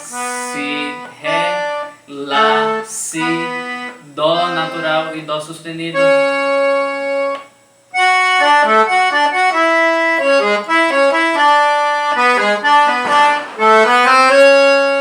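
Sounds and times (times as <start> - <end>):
accordion melody: 0.0 - 15.0.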